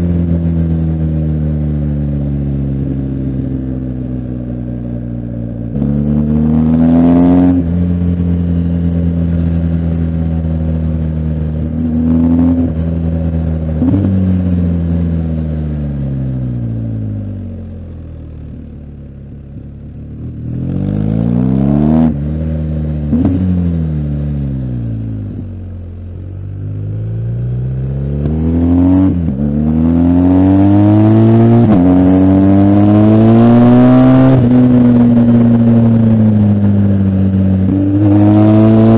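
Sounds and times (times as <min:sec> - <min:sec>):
motorcycle engine revving through gears: 0:00.0 - 0:38.9.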